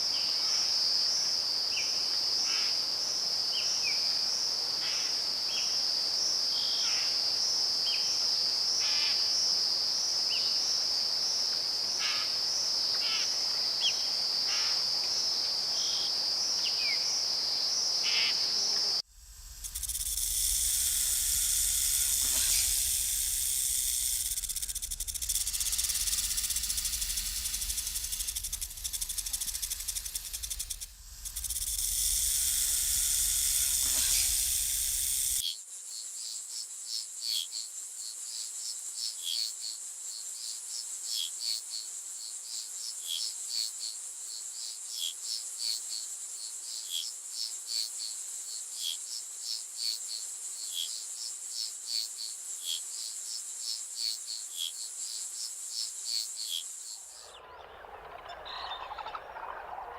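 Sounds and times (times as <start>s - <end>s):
crickets chirping and trilling: 0.0s - 57.6s
rainforest hiss with low rumble: 13.5s - 35.8s.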